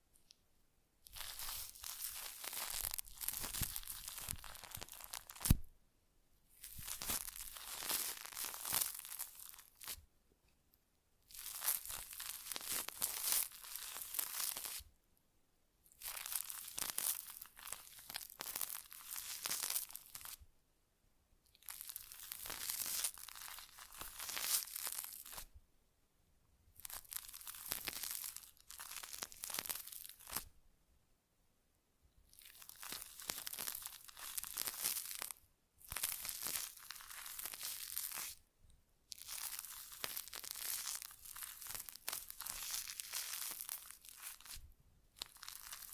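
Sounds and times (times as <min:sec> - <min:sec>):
crinkling and scratching: 0:01.1 - 0:05.6, 0:06.6 - 0:10.0, 0:39.2 - 0:44.6, 0:45.2 - 0:45.9.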